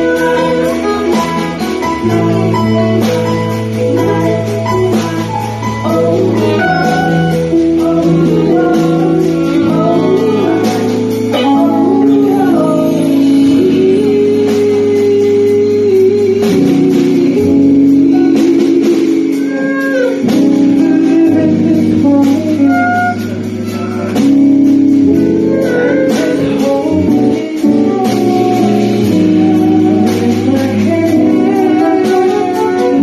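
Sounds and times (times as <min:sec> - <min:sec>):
live band playing soul music: 0:00.0 - 0:33.0.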